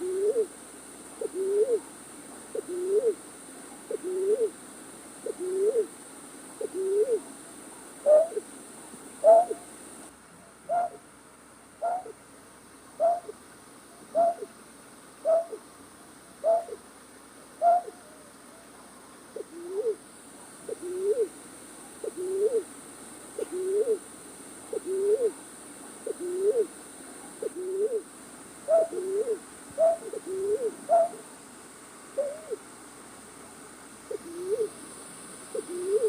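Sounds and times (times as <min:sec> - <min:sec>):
night bird hooting: 0:00.0 - 0:00.5, 0:01.2 - 0:01.8, 0:02.5 - 0:03.2, 0:03.9 - 0:04.6, 0:05.2 - 0:05.9, 0:06.6 - 0:07.2, 0:08.0 - 0:08.4, 0:09.2 - 0:09.7, 0:10.7 - 0:11.0, 0:11.8 - 0:12.2, 0:13.0 - 0:13.4, 0:14.1 - 0:14.6, 0:15.2 - 0:15.6, 0:16.4 - 0:16.8, 0:17.6 - 0:18.2, 0:19.3 - 0:20.0, 0:20.7 - 0:21.3, 0:22.0 - 0:22.7, 0:23.4 - 0:24.0, 0:24.7 - 0:25.4, 0:26.0 - 0:26.7, 0:27.4 - 0:28.0, 0:28.7 - 0:31.2, 0:32.2 - 0:32.6, 0:34.1 - 0:34.8, 0:35.5 - 0:36.0.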